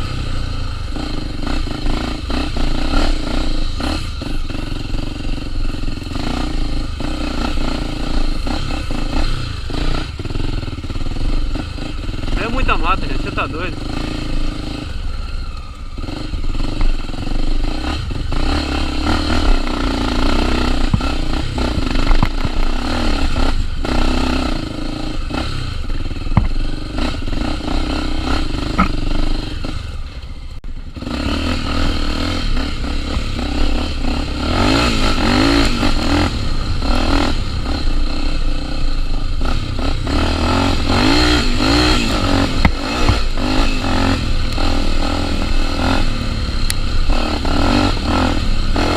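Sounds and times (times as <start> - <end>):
motorcycle engine revving: 0.0 - 48.9
clattering knocks from motorcycle: 26.3 - 26.6, 28.7 - 29.0.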